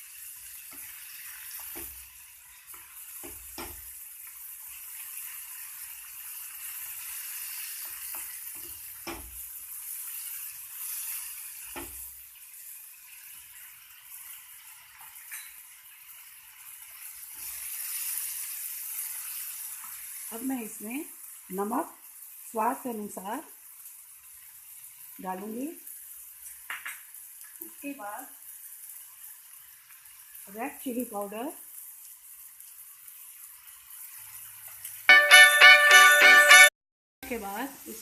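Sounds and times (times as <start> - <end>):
vegetables sizzling in hot oil: 0.0 - 35.1, 37.2 - 38.0.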